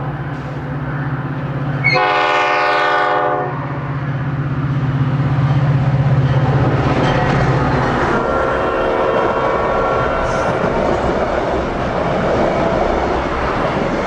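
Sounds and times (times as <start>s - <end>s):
diesel locomotive drone: 0.0s - 14.0s
train air horn blast: 1.8s - 3.6s, 8.3s - 10.6s.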